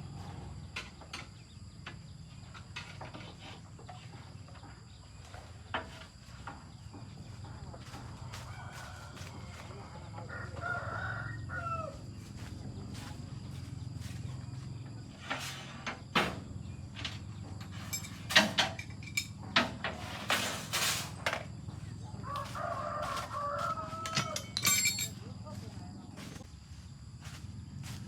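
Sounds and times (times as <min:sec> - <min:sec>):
rooster crowing: 0:07.8 - 0:13.1, 0:21.8 - 0:25.0.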